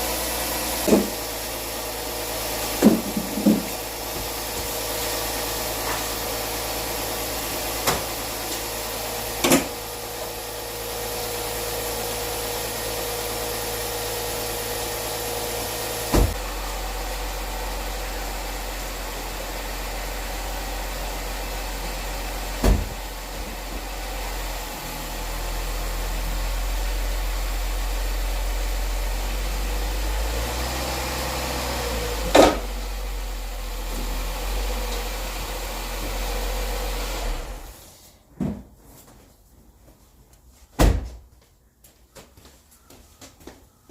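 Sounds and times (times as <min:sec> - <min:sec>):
car engine idling: 0:00.0 - 0:37.1
sharp knocks and clanks: 0:00.8 - 0:01.2, 0:02.8 - 0:03.8.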